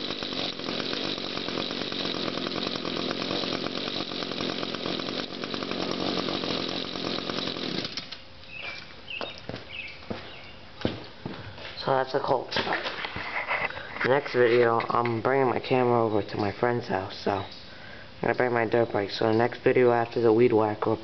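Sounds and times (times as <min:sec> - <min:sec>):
string trimmer engine running: 0:00.0 - 0:08.2.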